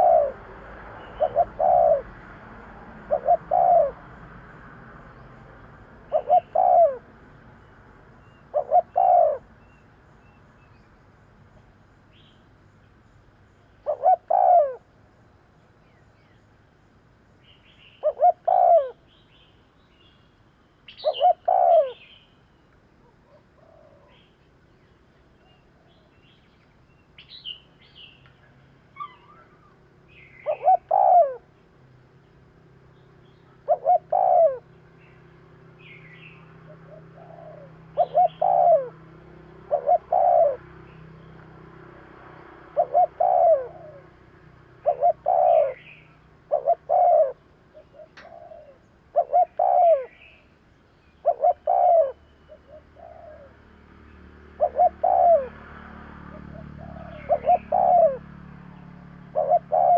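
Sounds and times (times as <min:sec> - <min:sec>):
doves cooing: 0:00.0 - 0:04.3, 0:06.0 - 0:07.2, 0:08.4 - 0:09.8, 0:13.8 - 0:14.9, 0:18.0 - 0:19.0, 0:21.0 - 0:22.1, 0:23.0 - 0:24.3, 0:30.4 - 0:31.5, 0:33.4 - 0:35.0, 0:36.5 - 0:50.4, 0:51.2 - 0:53.6, 0:54.5 - 0:59.9
faint high bird chirps: 0:17.4 - 0:31.7, 0:32.9 - 0:39.0, 0:44.8 - 0:55.5.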